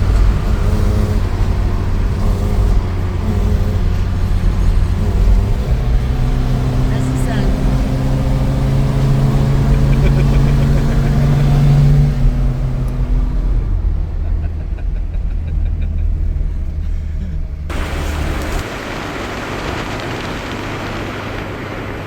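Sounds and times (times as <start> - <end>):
car engine running: 0.0 - 22.0
noisy hiss: 17.7 - 22.0.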